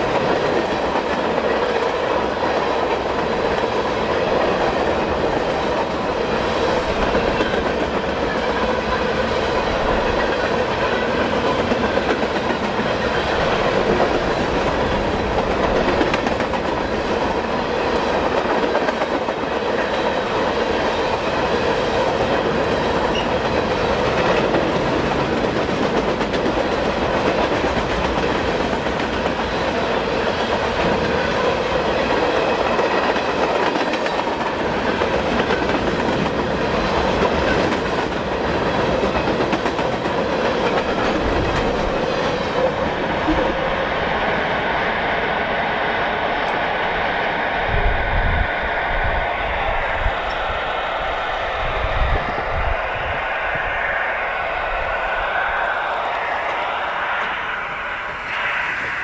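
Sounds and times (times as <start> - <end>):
freight train rolling past: 0.0 - 59.0.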